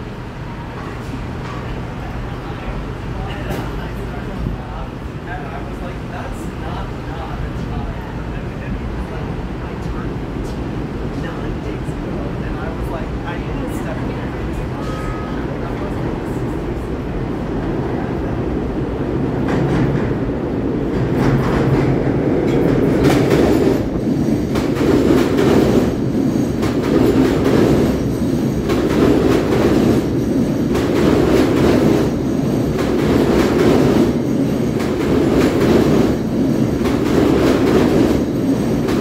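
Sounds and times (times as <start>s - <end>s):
train wheels clacking over rail joints: 20.9s - 39.0s.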